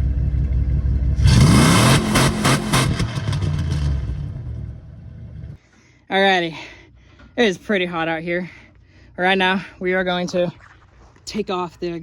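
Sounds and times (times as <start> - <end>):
car engine revving: 0.0 - 5.6.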